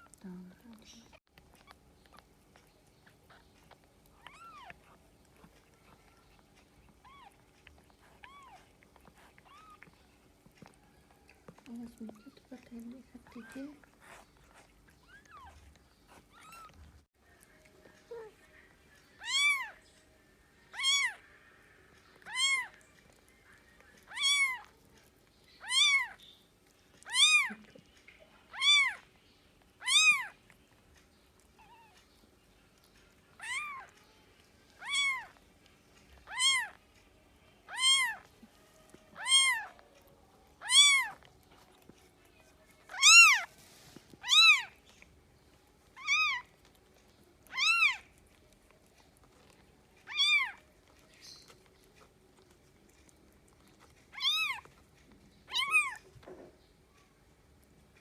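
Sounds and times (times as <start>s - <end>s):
cat meowing: 4.2s - 6.2s, 7.0s - 10.0s, 15.1s - 16.9s, 19.2s - 19.8s, 20.7s - 21.2s, 22.2s - 22.8s, 24.0s - 24.7s, 25.6s - 26.2s, 27.0s - 27.7s, 28.5s - 29.0s, 29.8s - 30.4s, 33.4s - 33.9s, 34.8s - 35.4s, 36.2s - 36.8s, 37.7s - 38.3s, 39.1s - 39.8s, 40.6s - 41.3s, 42.9s - 43.5s, 44.2s - 44.8s, 46.0s - 46.5s, 47.4s - 48.1s, 50.0s - 50.6s, 54.1s - 54.7s, 55.5s - 56.1s.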